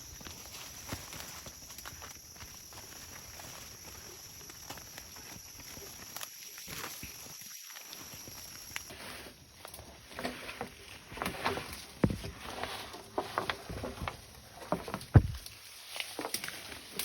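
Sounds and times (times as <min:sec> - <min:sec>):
heavy thuds: 0:15.0 - 0:15.5.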